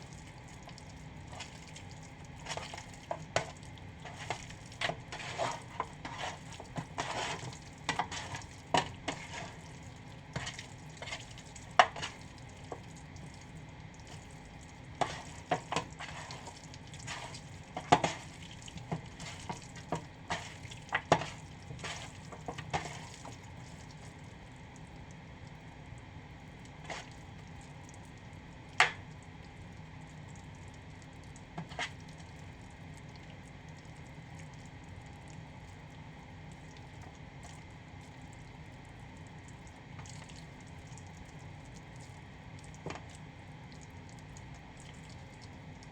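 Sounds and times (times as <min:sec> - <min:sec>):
chicken frying in a pan: 0:00.0 - 0:45.9
utensil scraping a pan: 0:02.5 - 0:09.7, 0:10.4 - 0:12.2, 0:15.0 - 0:23.3.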